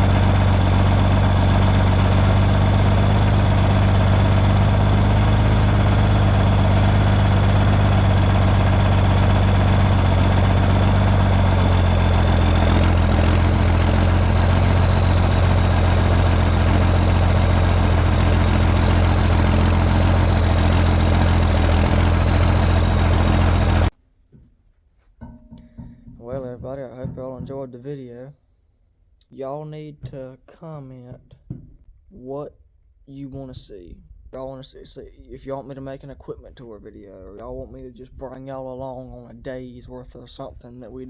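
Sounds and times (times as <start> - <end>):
diesel tractor engine idling: 0.0 - 23.9.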